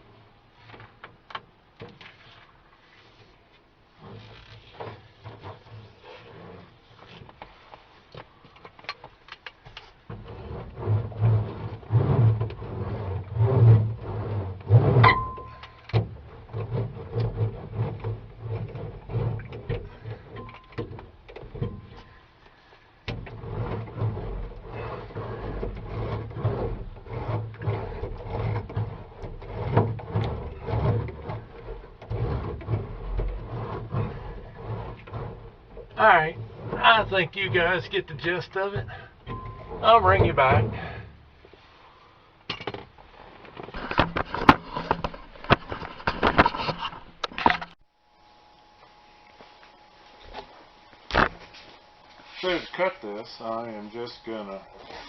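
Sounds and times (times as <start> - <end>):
insulation sheets knocking and crinkling: 4.0 - 22.0, 23.1 - 41.2, 42.5 - 47.8.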